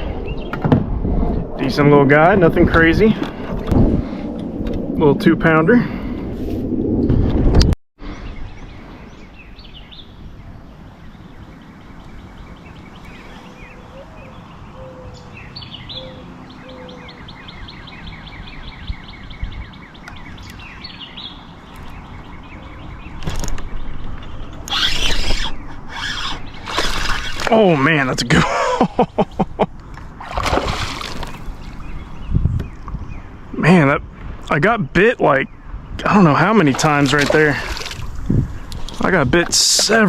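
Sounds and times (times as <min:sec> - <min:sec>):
outdoor background noise: 0:00.0 - 0:40.0
songbirds singing: 0:08.0 - 0:40.0.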